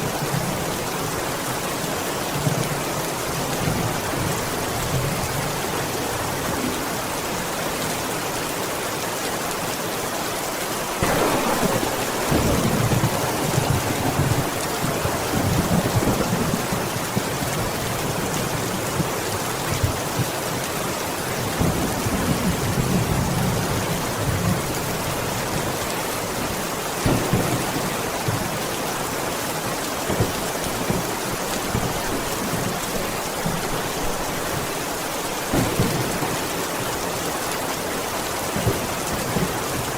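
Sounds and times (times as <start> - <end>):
steady rain: 0.0 - 39.9
thunder rumbling: 11.0 - 17.7, 27.0 - 28.7, 35.4 - 37.4.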